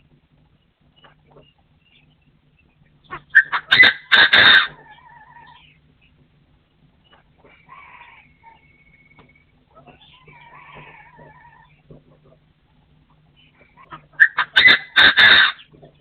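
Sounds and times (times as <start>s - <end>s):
wavering whistled bird calls: 0.9s - 6.2s, 7.0s - 11.8s, 13.3s - 15.7s
partridge harsh crowing: 3.1s - 5.7s, 7.4s - 11.9s, 13.7s - 15.7s.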